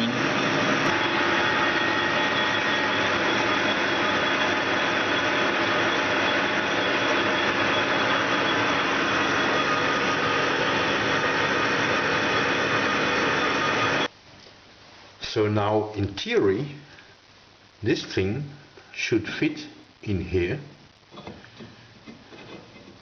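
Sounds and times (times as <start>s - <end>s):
coolant hissing: 0.0s - 14.1s
machine tool cutting metal: 0.0s - 14.1s
faint machine whine: 0.0s - 14.2s.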